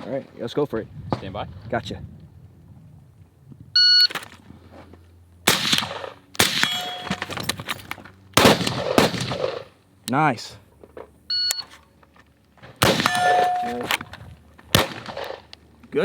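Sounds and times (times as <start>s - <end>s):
rifle shots: 5.5s - 7.8s, 8.4s - 9.7s, 12.8s - 15.5s
steel target ringing: 6.5s - 7.6s, 12.8s - 14.2s
shot timer beep: 11.3s - 11.7s, 13.1s - 14.0s.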